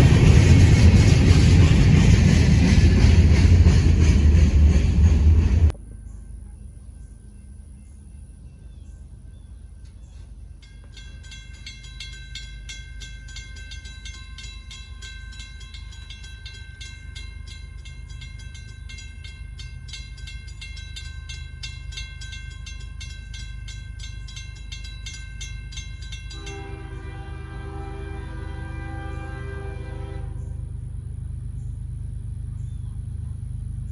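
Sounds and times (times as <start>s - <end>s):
steady low rumble: 0.0s - 27.4s
crossing bell ringing rapidly: 10.6s - 27.5s
locomotive air horn chord: 26.1s - 30.8s.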